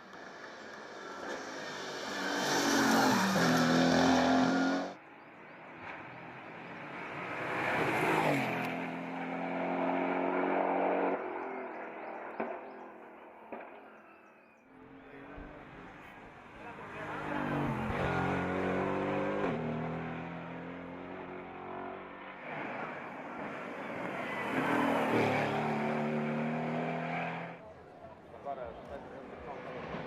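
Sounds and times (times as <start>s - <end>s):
race car engine passing: 0.5s - 5.0s, 16.6s - 27.7s.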